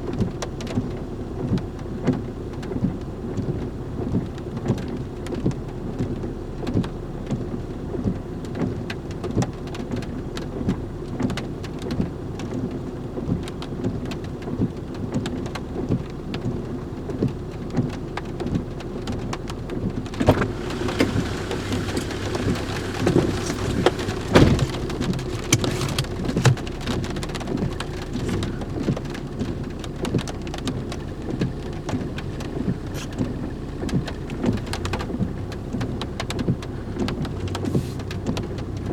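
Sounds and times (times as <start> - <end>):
rain pattering: 0.0 - 38.9
heavy thumps: 20.2 - 28.7.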